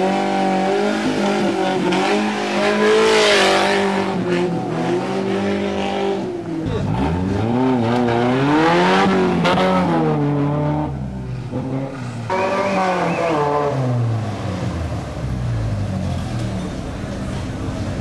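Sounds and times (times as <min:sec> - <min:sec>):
race vehicle engines revving: 0:00.0 - 0:18.0.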